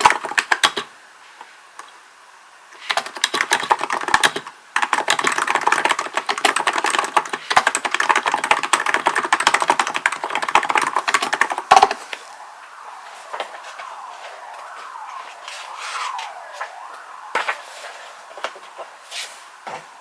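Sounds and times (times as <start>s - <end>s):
keyboard typing: 0.0s - 0.9s, 2.8s - 12.0s.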